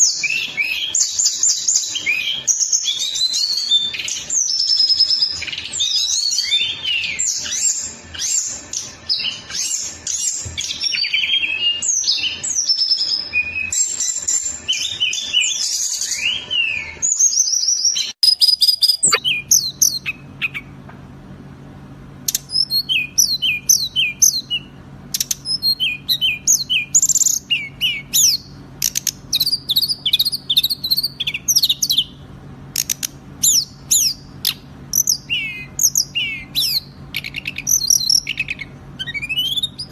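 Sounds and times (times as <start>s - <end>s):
songbird rapid chirps and trills: 0.0s - 20.8s, 22.3s - 39.9s
bird singing short chirp phrases: 18.2s - 20.7s
steady low hum: 18.2s - 39.9s.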